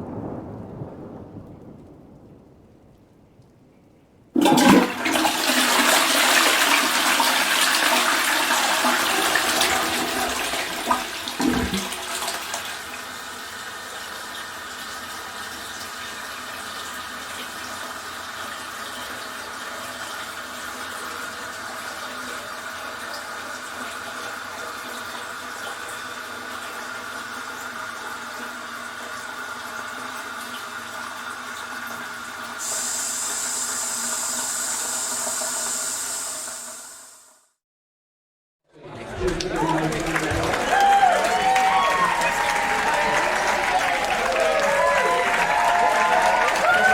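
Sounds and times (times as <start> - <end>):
tank refilling with hiss: 4.4 - 28.3, 32.3 - 37.3
toilet flushing: 4.4 - 37.2, 38.8 - 46.9
higher hiss: 32.6 - 37.3.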